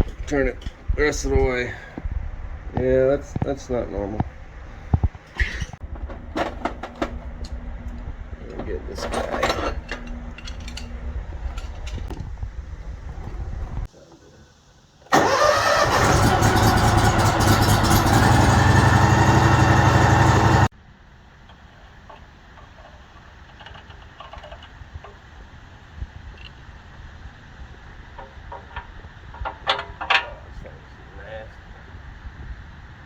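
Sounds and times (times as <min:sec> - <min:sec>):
small petrol engine running: 0:15.1 - 0:20.7.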